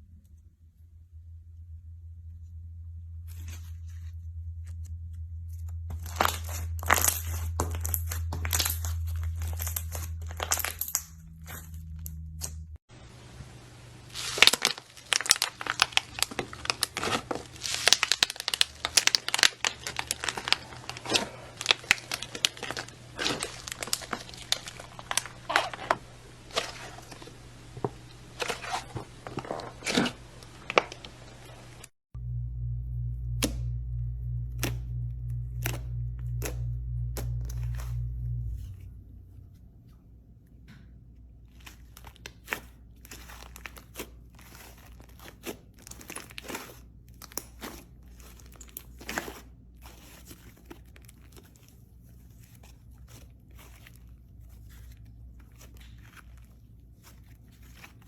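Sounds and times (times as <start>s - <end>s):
slime crackling and popping: 5.6s - 12.6s, 14.1s - 31.8s, 34.5s - 38.7s, 41.5s - 58.0s.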